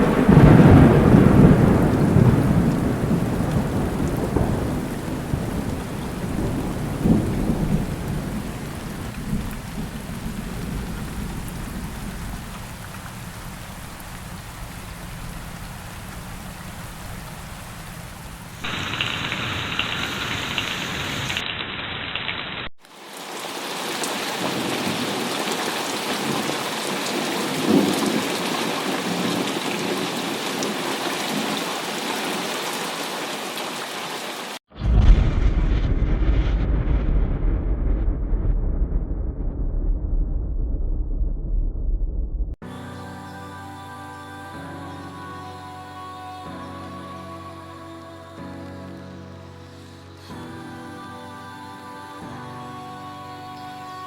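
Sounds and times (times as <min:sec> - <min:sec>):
heavy rain falling: 0:00.0 - 0:38.4
deep low rumble: 0:34.7 - 0:42.6.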